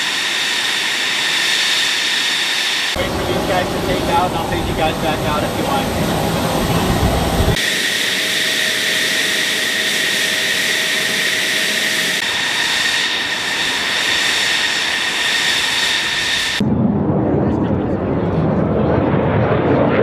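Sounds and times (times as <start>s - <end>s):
loud rush of air: 0.0s - 17.0s
fighter jet engine whine: 0.0s - 20.0s
deep rumbling noise: 3.0s - 7.6s, 12.2s - 20.0s.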